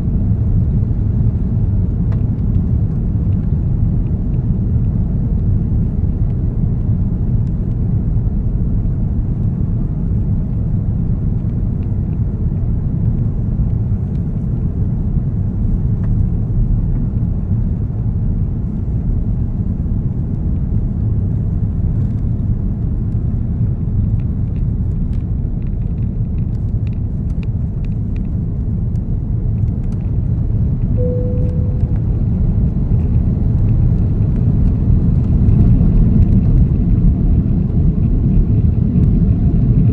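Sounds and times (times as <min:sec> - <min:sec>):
airliner cabin engine rumble: 0:00.0 - 0:39.9
short steady tone: 0:31.0 - 0:32.1.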